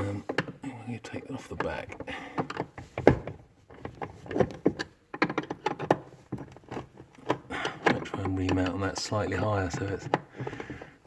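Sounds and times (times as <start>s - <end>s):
hard plastic parts handled: 0.0s - 0.7s, 1.3s - 11.0s
screwdriver knocking and clicking: 2.4s - 8.8s.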